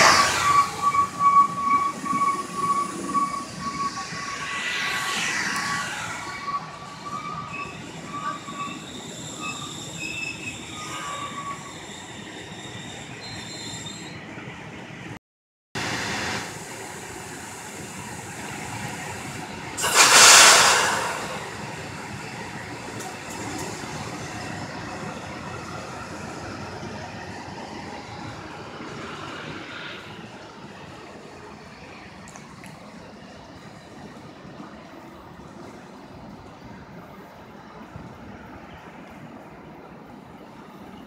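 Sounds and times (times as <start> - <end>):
loud rush of hiss: 0.0 - 1.2, 2.0 - 11.4, 15.8 - 23.4
wheels squealing on rails: 0.0 - 14.6, 16.3 - 41.0
train rumbling: 0.0 - 15.2, 15.8 - 41.0.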